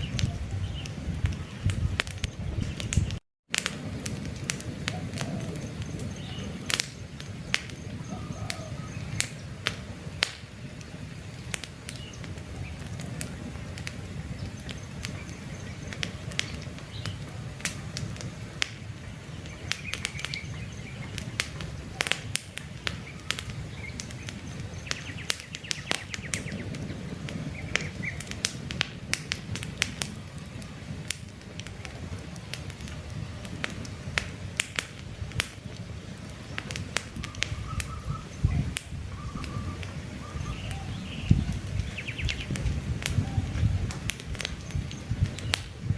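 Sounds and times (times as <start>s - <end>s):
campfire crackling: 0.0s - 45.9s
faint bird chirps: 7.4s - 9.3s, 37.2s - 42.6s.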